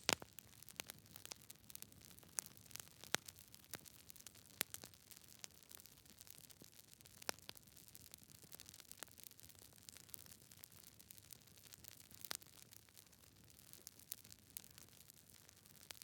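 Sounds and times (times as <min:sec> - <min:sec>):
fire crackling in a fireplace: 0:00.0 - 0:16.0.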